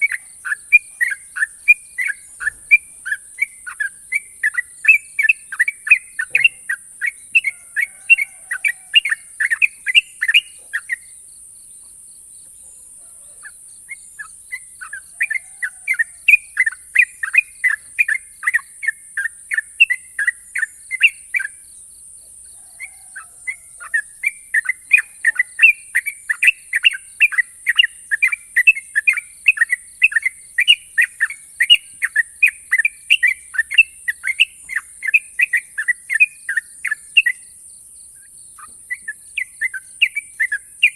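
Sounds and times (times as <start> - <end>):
bulbul singing rapid notes: 0.0 - 7.5.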